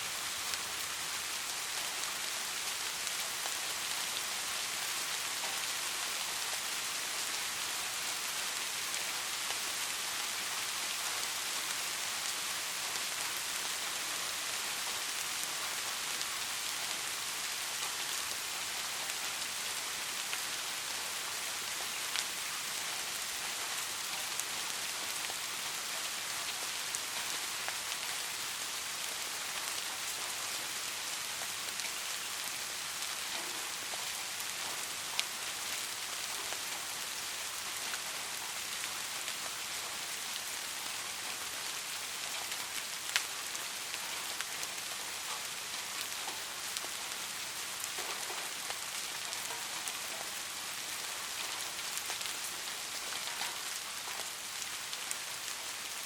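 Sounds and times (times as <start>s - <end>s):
soft rain falling: 0.0s - 56.0s.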